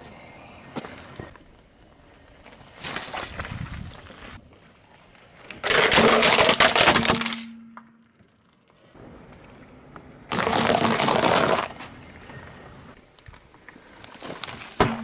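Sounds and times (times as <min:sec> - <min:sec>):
objects crushed under car tyre: 0:05.6 - 0:07.6, 0:10.3 - 0:11.8.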